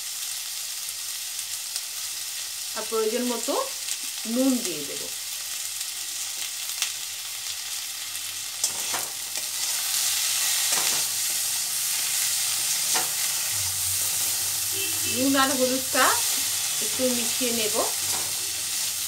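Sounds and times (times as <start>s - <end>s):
vegetables sizzling in oil: 0.0s - 19.0s
metal spatula scraping pan: 8.6s - 9.8s, 10.6s - 19.0s.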